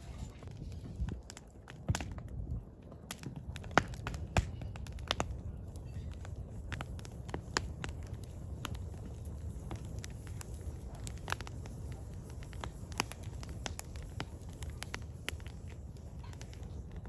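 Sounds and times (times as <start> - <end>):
firewood crackling and popping: 0.0 - 17.0.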